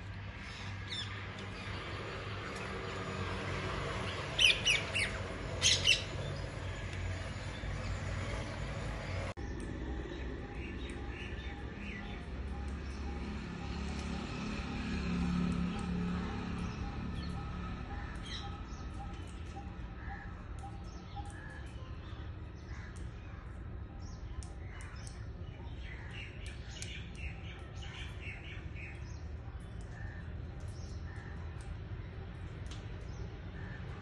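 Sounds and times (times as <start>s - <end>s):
birds chirping: 0.2s - 14.8s.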